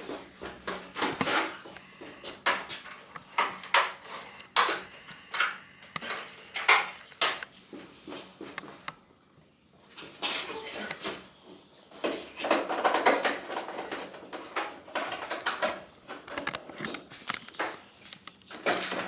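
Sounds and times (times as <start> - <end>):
metal tools clinking and scraping: 12.6 - 19.0.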